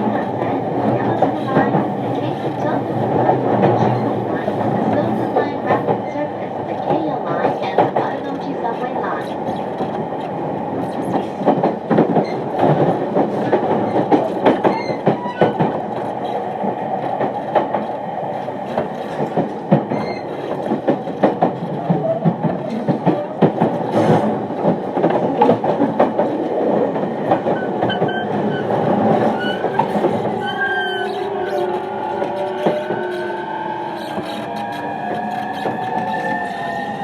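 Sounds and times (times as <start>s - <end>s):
train running rumble: 0.0s - 37.0s
train wheels clickety-clack: 0.0s - 37.0s.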